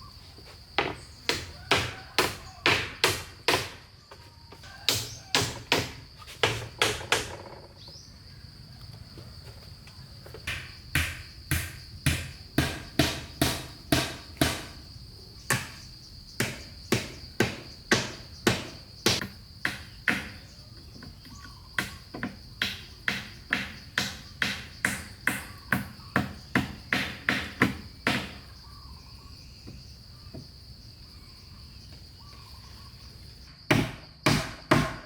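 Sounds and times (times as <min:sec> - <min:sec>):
insect drone: 0:00.0 - 0:35.0
hand tool striking wood: 0:00.8 - 0:03.9, 0:04.6 - 0:07.5, 0:10.4 - 0:14.8, 0:15.5 - 0:15.8, 0:16.4 - 0:20.4, 0:21.0 - 0:28.4, 0:33.7 - 0:35.0.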